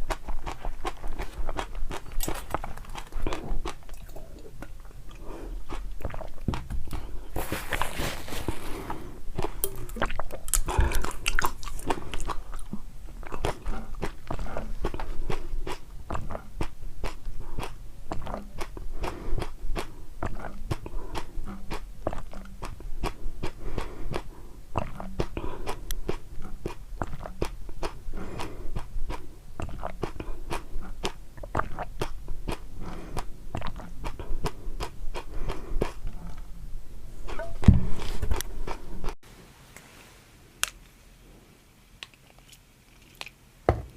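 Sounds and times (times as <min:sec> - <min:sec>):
chewing crunchy food: 0:00.0 - 0:36.5, 0:42.0 - 0:43.4
low thump: 0:37.6 - 0:38.0.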